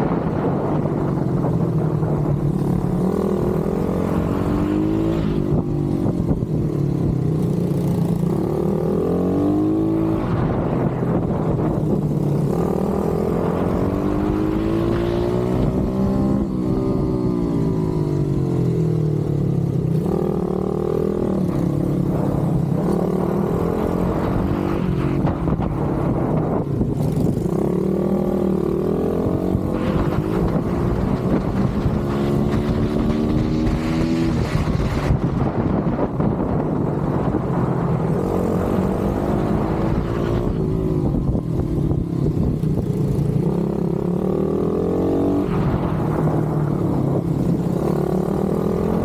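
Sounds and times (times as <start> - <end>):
pit bike engine revving: 20.0 - 42.2.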